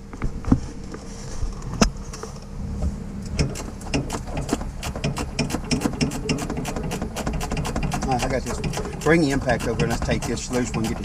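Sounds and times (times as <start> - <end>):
steady low hum: 0.0 - 11.0
sharp metal click: 3.3 - 11.0
ratchet wrench clicking: 3.4 - 11.0.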